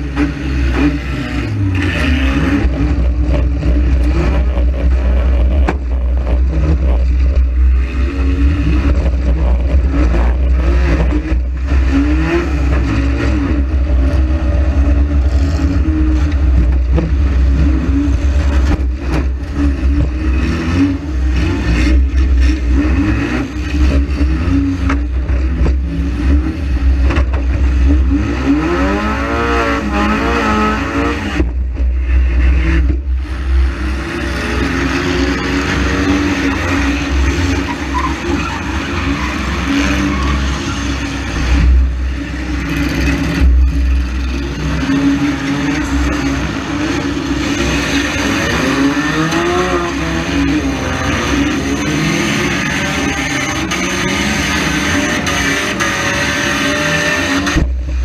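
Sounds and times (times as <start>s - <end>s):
car engine revving: 0.0s - 58.0s
heavy low rumble: 1.4s - 22.7s
knocks and clatter from car: 27.0s - 27.7s.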